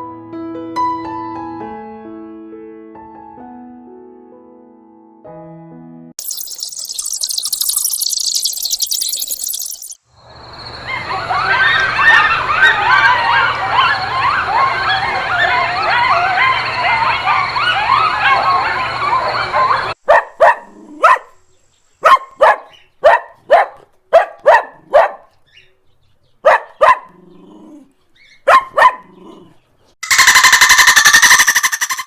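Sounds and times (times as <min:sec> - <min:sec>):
chorus of high-pitched calls: 0:06.2 - 0:10.0, 0:10.7 - 0:20.0, 0:30.0 - 0:32.0
dog barking: 0:12.0 - 0:21.4, 0:22.0 - 0:25.4, 0:26.4 - 0:27.4, 0:28.3 - 0:29.6.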